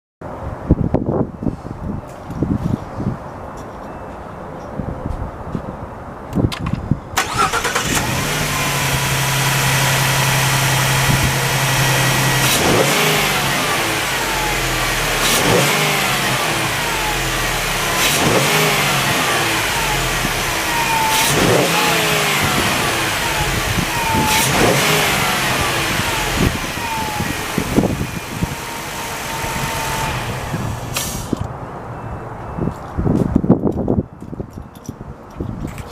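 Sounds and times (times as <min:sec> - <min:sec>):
van engine cranking: 0:07.2 - 0:31.4
van engine idling and revving: 0:07.2 - 0:31.5.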